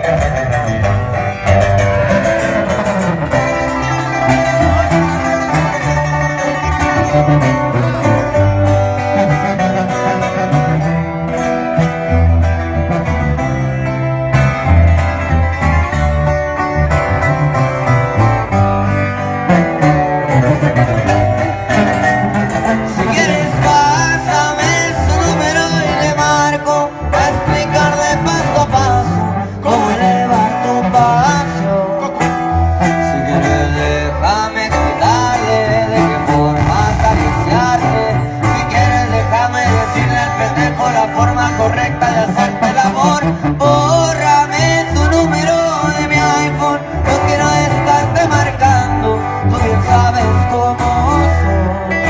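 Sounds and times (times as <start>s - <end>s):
band music with plucked guitars: 0.0s - 52.0s
steady bass line: 0.0s - 52.0s.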